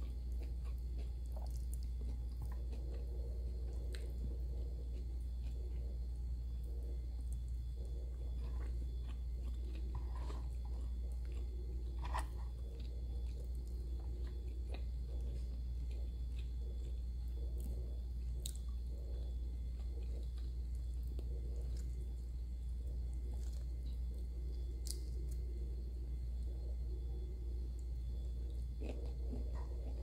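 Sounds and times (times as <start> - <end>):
chewing and mouth smacks: 0.0 - 6.0, 6.6 - 22.2, 23.1 - 25.5
low hum: 0.0 - 30.0.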